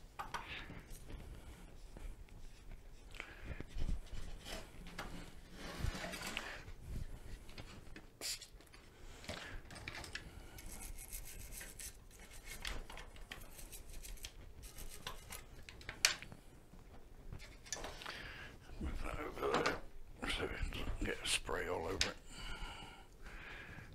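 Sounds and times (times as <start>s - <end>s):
scrubbing strokes: 10.6s - 12.6s.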